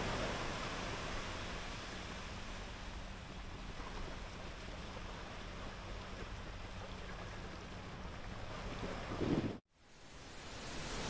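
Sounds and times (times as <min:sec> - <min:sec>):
ocean surf washing onto sand: 0:00.0 - 0:03.0
wind buffeting microphone: 0:00.0 - 0:09.6.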